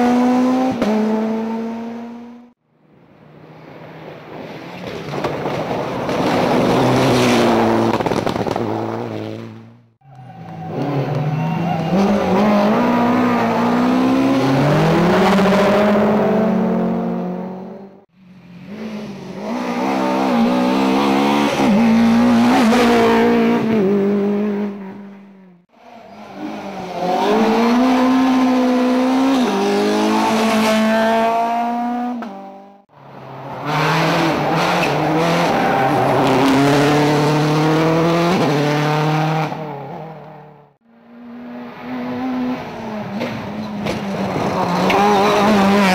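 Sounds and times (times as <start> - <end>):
rally car engines revving: 0.0 - 2.6, 3.5 - 45.9.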